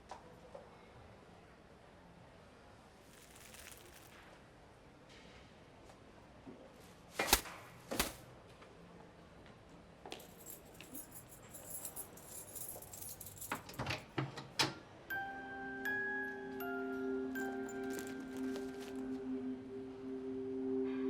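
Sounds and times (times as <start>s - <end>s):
light metallic jingling and clicks: 10.1s - 14.1s, 17.4s - 19.0s.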